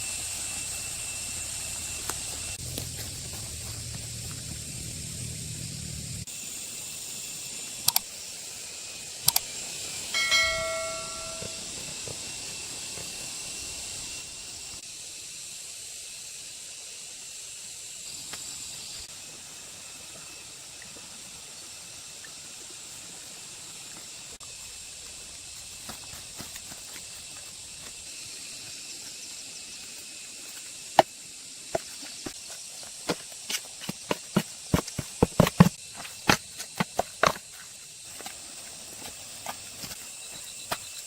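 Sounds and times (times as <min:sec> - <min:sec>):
steady high hiss: 0:00.0 - 0:41.0
sharp clicks: 0:07.9 - 0:08.1, 0:09.3 - 0:09.5
metal object struck and ringing: 0:10.2 - 0:11.8.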